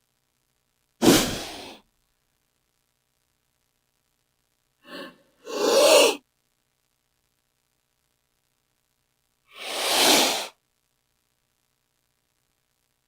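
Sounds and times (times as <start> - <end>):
snake hissing: 1.0 - 1.8, 4.9 - 6.2, 9.5 - 10.6.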